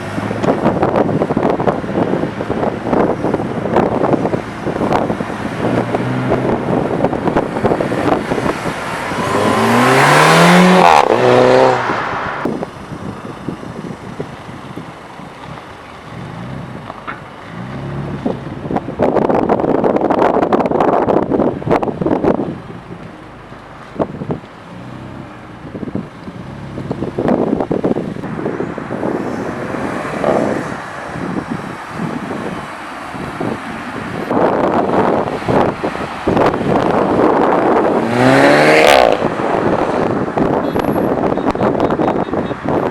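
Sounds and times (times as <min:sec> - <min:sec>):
car exhaust passing: 0:00.0 - 0:14.8, 0:28.9 - 0:42.8
wind buffeting microphone: 0:00.0 - 0:42.9
car accelerating past: 0:08.0 - 0:12.4.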